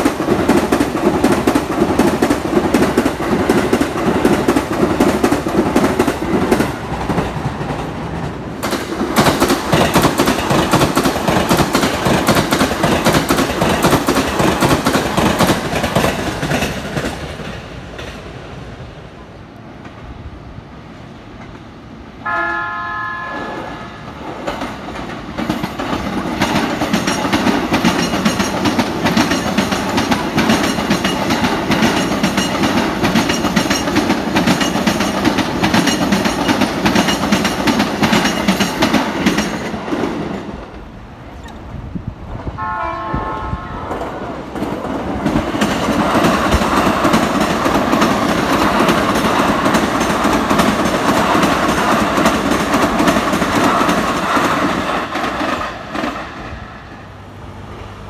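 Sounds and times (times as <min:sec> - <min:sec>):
wheels clattering over rail joints: 0:00.0 - 0:18.2, 0:24.2 - 0:40.9
electric train rumbling past: 0:00.0 - 0:58.0
train horn: 0:22.2 - 0:24.1, 0:42.6 - 0:44.2.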